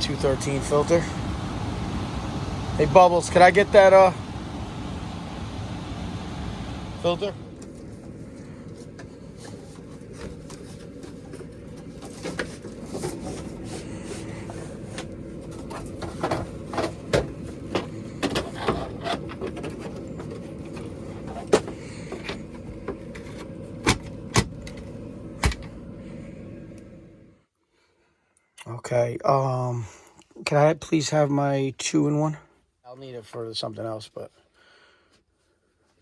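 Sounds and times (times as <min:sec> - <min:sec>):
steady low hum: 0:00.0 - 0:28.2.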